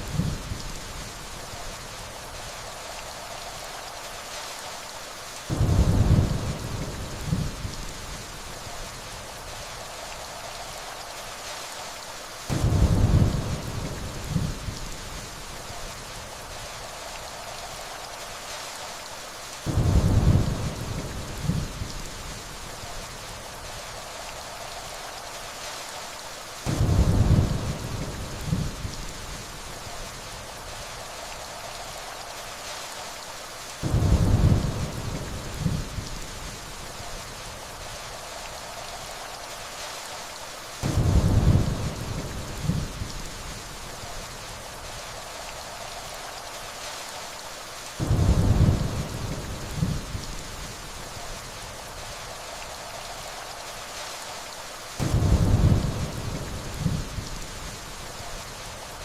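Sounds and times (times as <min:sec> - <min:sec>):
steady rainfall: 0:00.0 - 0:59.0
distant thunder rumble: 0:05.5 - 0:08.2, 0:12.5 - 0:14.9, 0:19.6 - 0:22.4, 0:26.7 - 0:29.4, 0:33.8 - 0:36.6, 0:40.8 - 0:43.2, 0:48.0 - 0:50.6, 0:55.0 - 0:57.8.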